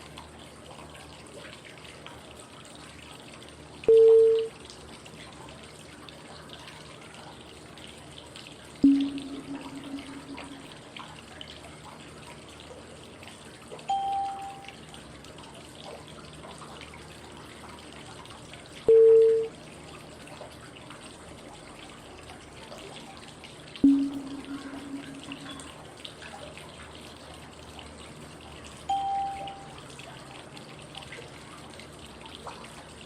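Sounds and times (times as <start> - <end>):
running water white noise: 0.0 - 33.0
water drips: 0.0 - 33.0
pitched cue tone: 3.9 - 4.5, 8.8 - 10.8, 13.9 - 14.7, 18.9 - 19.5, 23.8 - 25.8, 28.9 - 29.7.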